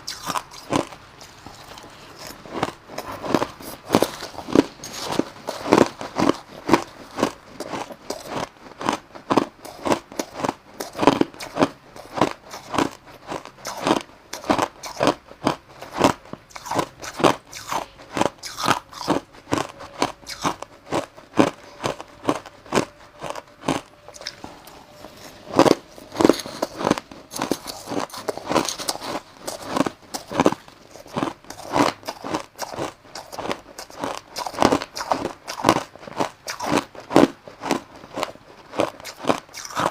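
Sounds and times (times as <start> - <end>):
person chewing crushed ice: 0.0 - 39.9.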